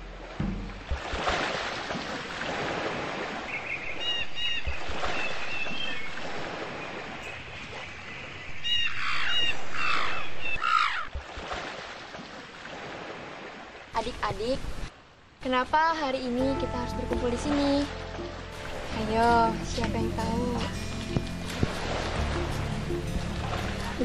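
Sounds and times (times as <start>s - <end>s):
harsh falling bird calls: 3.4s - 11.2s.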